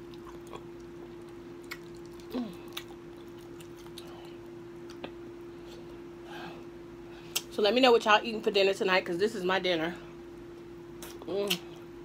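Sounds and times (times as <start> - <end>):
person chewing food: 0.0 - 6.0
fan humming: 0.0 - 12.0
wet mouth clicks: 1.6 - 4.1.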